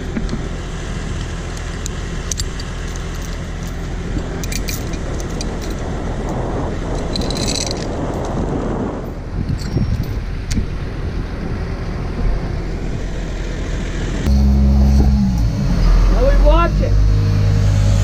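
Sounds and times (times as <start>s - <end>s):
engine idling: 0.0s - 8.3s, 10.3s - 18.0s
light metallic clinks and rattles: 1.2s - 8.4s, 9.4s - 10.6s.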